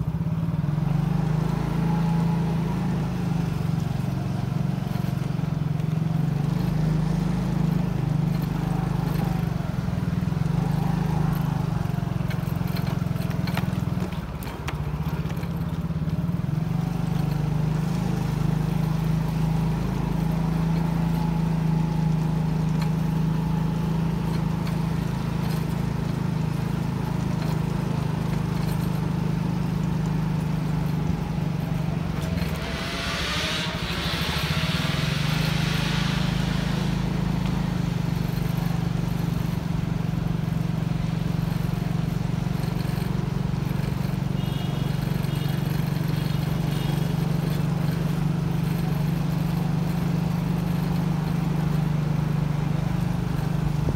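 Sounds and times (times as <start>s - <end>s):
motorcycle engine running: 0.0s - 53.9s
brief hiss: 32.4s - 38.2s.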